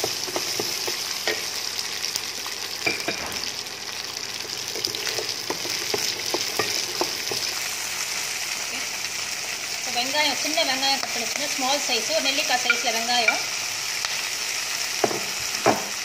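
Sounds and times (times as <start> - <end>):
berries sizzling in hot oil: 0.0 - 16.0
spatula knocking and scraping pan: 4.8 - 7.5.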